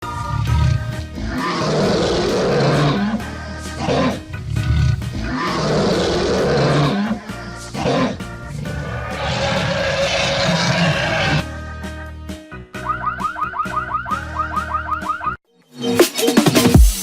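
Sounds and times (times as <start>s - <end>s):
dinosaur roars: 0.0s - 11.4s
background music: 0.0s - 17.0s.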